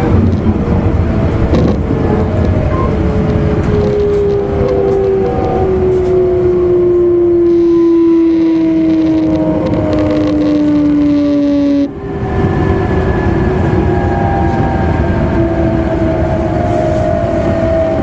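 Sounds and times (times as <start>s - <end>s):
train wheels rumbling on rails: 0.0s - 18.0s
train motor whine: 0.5s - 18.0s
level electric tone: 4.0s - 13.6s.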